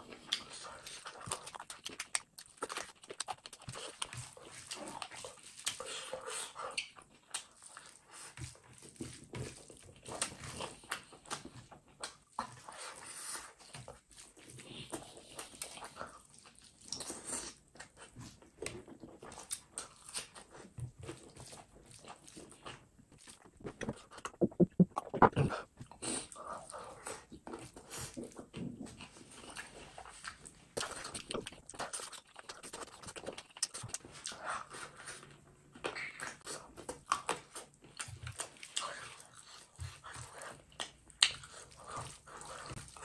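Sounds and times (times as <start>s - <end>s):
wet chewing and lip smacking: 0.0s - 43.0s.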